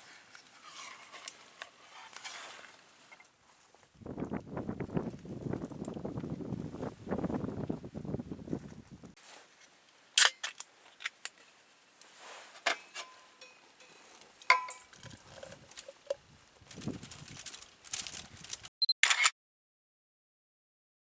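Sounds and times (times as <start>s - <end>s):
camp gear knocks and clinks: 12.6s - 16.8s.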